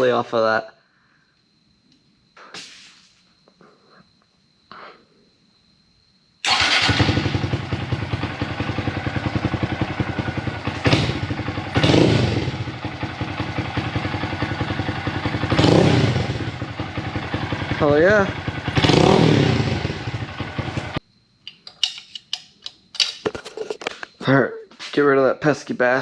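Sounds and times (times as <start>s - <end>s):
motorcycle engine starting and revving: 6.4s - 21.0s.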